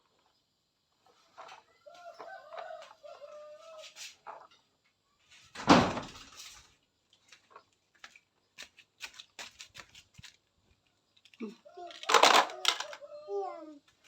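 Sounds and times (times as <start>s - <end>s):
loud thump: 5.6s - 6.2s.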